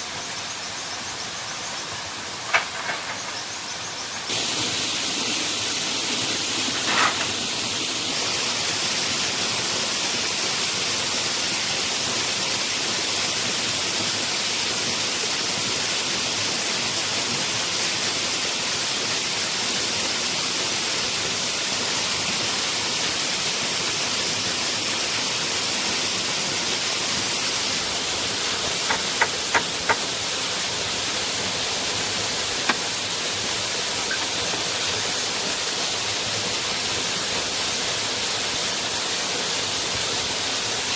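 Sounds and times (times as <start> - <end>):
waterfall rushing: 4.3 - 40.9
sharp knocks: 28.8 - 30.2.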